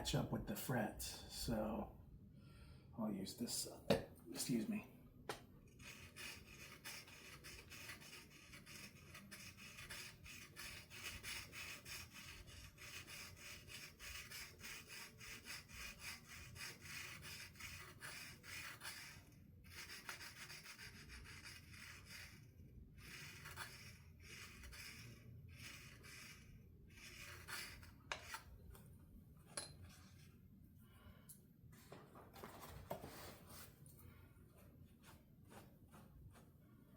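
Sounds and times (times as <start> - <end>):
file rasping on metal frets: 5.7 - 28.4.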